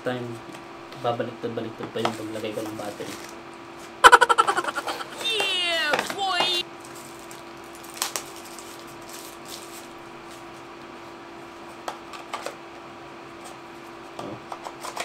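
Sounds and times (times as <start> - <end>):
steady low hum: 0.0 - 7.0.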